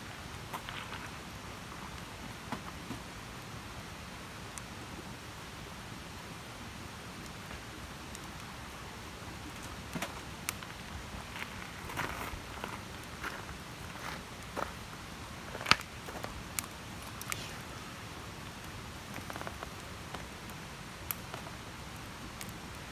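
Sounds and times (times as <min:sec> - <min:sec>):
campfire hissing: 0:00.0 - 0:22.9
campfire crackles and pops: 0:00.2 - 0:22.9.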